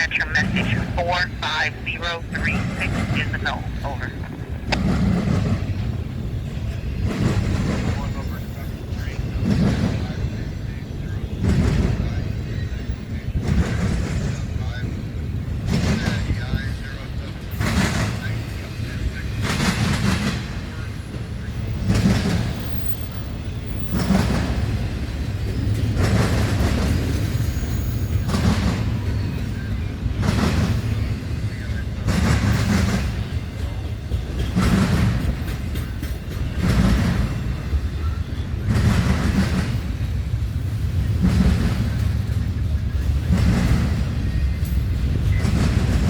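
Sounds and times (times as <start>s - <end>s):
train cars rumbling past: 0.0s - 46.0s.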